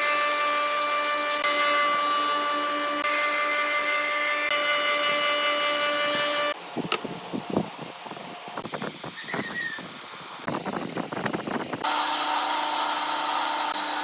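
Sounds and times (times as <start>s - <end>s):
power tool whining on wood: 0.0s - 6.6s, 11.8s - 14.0s.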